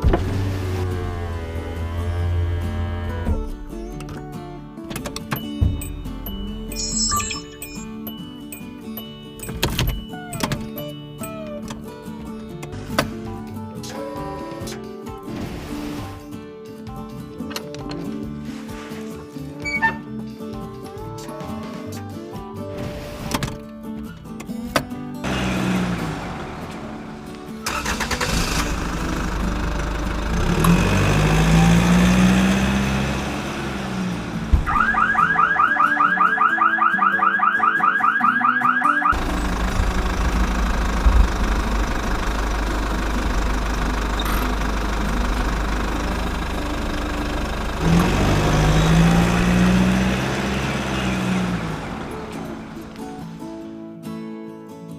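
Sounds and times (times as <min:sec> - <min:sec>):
vehicle engine revving: 0:00.0 - 0:03.8, 0:25.2 - 0:35.0, 0:39.1 - 0:53.2.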